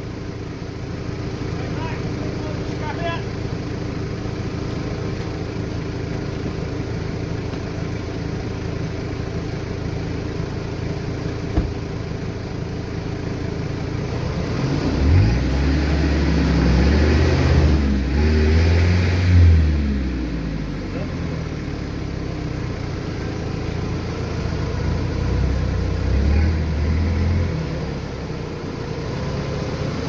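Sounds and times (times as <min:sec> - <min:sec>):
four-wheel-drive engine revving: 0:00.0 - 0:30.0
sharp knock: 0:11.5 - 0:11.8.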